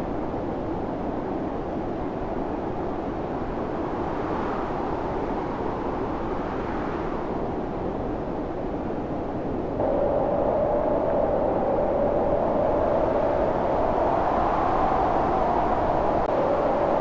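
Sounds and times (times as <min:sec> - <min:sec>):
storm wind blowing: 0:09.2 - 0:17.0.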